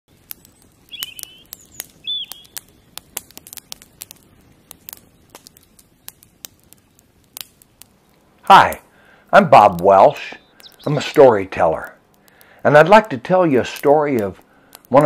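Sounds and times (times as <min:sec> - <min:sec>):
sharp clicks: 0:00.2 - 0:08.9, 0:09.7 - 0:15.0
bird calls: 0:00.4 - 0:02.8, 0:10.2 - 0:11.1.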